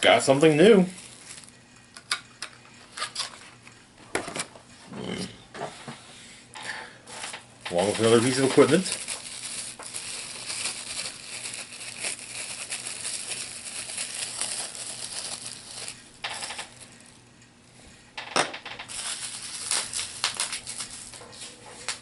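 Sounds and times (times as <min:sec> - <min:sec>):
plastic packaging crinkling: 0:00.0 - 0:02.2, 0:07.6 - 0:16.9, 0:18.8 - 0:22.0.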